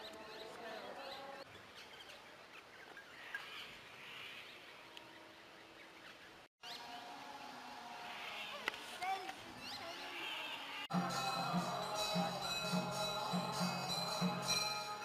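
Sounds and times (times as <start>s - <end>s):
faint outdoor ambience: 0.0s - 15.0s.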